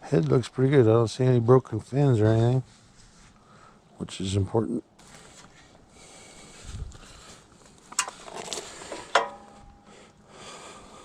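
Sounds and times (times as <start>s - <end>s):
handling noise: 7.6s - 9.9s.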